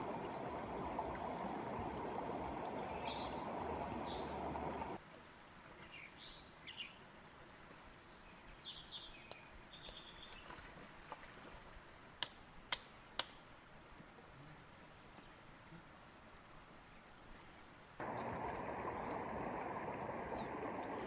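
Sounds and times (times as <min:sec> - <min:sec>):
birds chirping: 0:01.9 - 0:05.0, 0:18.0 - 0:21.0.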